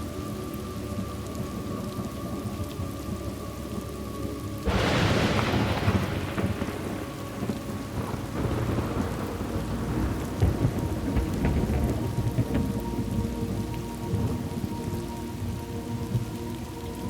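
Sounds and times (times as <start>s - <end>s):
steady rain: 0.0s - 17.0s
thunderclap rolling: 4.6s - 15.0s.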